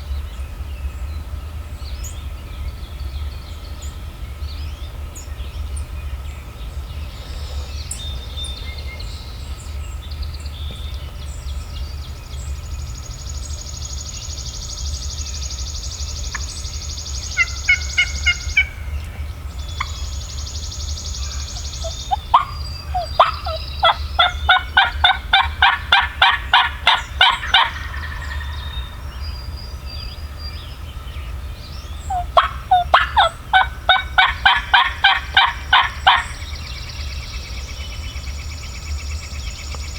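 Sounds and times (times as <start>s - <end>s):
turkey yelping: 17.3s - 19.1s, 21.4s - 29.0s, 32.1s - 36.4s.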